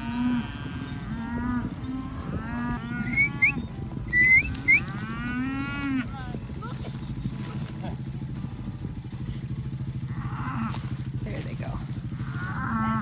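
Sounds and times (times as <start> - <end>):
cattle mooing: 0.0 - 8.0, 10.1 - 13.0
sharp rising whistles: 3.0 - 4.9.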